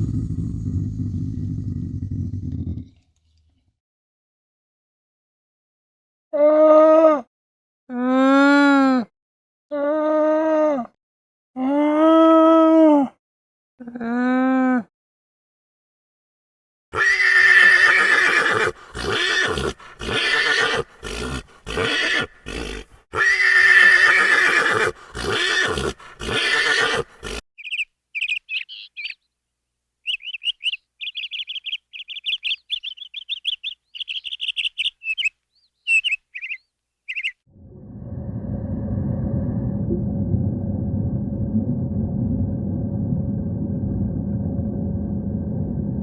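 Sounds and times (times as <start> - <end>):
animal neigh-like cries: 17.0 - 27.4.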